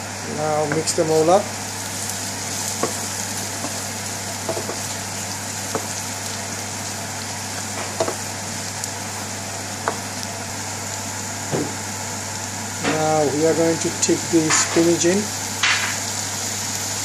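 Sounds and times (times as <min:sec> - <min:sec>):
onions sizzling in a frying pan: 0:00.0 - 0:17.0
wooden spoon knocking a pan: 0:02.8 - 0:03.8, 0:04.4 - 0:04.9, 0:05.7 - 0:06.0, 0:07.8 - 0:08.2, 0:09.8 - 0:10.1.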